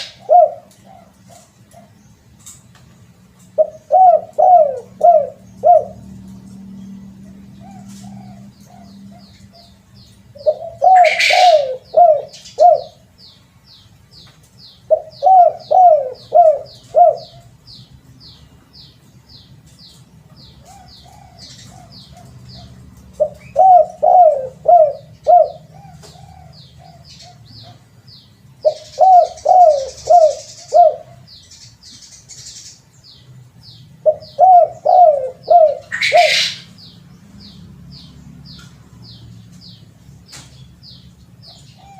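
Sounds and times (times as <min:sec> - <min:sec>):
dove cooing: 0:00.0 - 0:02.0, 0:03.4 - 0:06.4, 0:07.2 - 0:13.1, 0:14.8 - 0:17.8, 0:20.5 - 0:28.0, 0:28.6 - 0:31.3, 0:34.0 - 0:36.7, 0:41.5 - 0:41.9.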